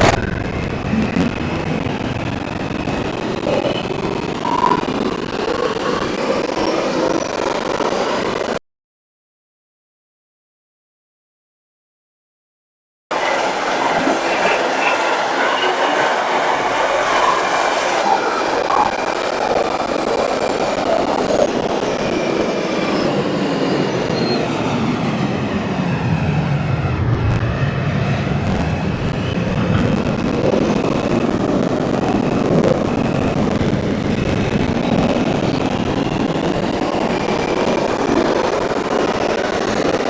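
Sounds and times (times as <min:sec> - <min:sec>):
subway train motor whine: 0:00.0 - 0:08.5, 0:13.1 - 0:40.0
wheel and rail noise: 0:00.0 - 0:08.6, 0:13.1 - 0:40.0
wheel squeal: 0:03.4 - 0:07.6, 0:13.2 - 0:24.7.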